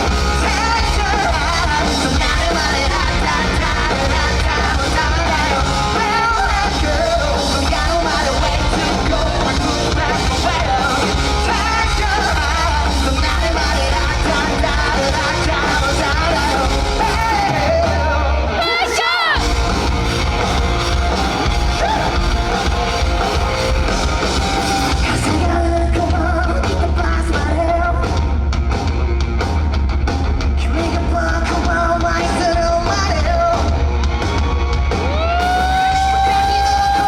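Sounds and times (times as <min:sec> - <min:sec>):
person singing: 0:00.0 - 0:19.4, 0:35.1 - 0:37.0
live rock band playing: 0:00.0 - 0:37.0.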